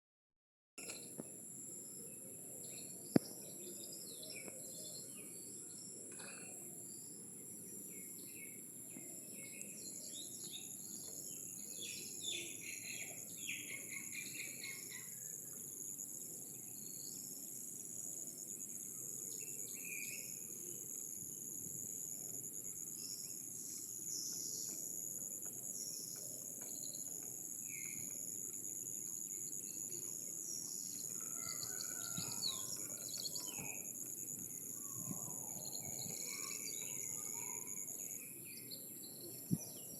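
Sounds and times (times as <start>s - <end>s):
bird chirps: 7.9s - 15.6s, 29.3s - 34.0s, 34.6s - 39.9s
insects trilling: 9.4s - 39.9s.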